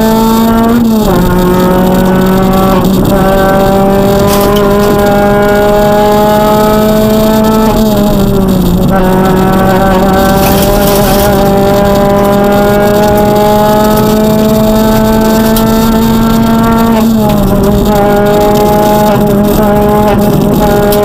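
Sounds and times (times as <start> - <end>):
rally car engine at high revs: 0.0 - 21.0.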